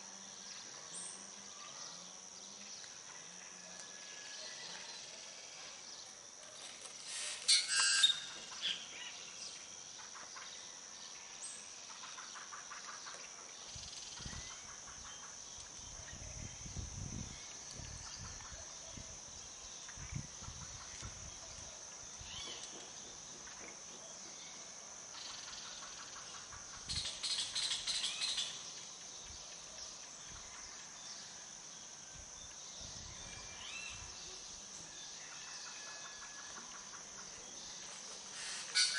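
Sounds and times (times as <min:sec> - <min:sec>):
insect drone: 0:00.0 - 0:38.9
birds calling: 0:38.3 - 0:38.9.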